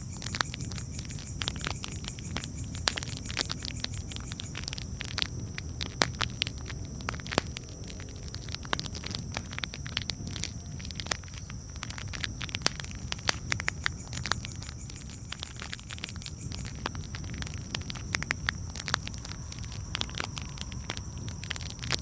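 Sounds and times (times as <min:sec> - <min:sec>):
low rumble of burning fire: 0:04.5 - 0:13.3, 0:16.8 - 0:22.0.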